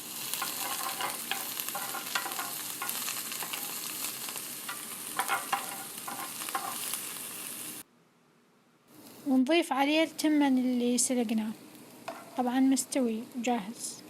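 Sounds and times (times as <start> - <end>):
vegetables sizzling in a pan: 0.0 - 7.8, 9.0 - 14.0
utensil scraping a pan: 0.3 - 7.0, 12.1 - 12.5.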